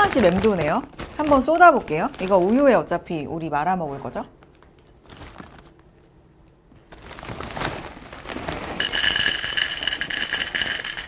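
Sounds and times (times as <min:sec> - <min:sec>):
cereal poured into a bowl: 0:08.2 - 0:11.0.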